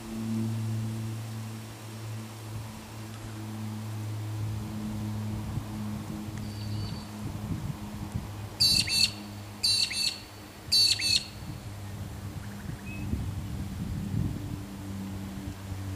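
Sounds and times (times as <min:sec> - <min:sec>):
low machine hum: 0:00.0 - 0:15.9
bird harsh double-note call: 0:08.6 - 0:11.4.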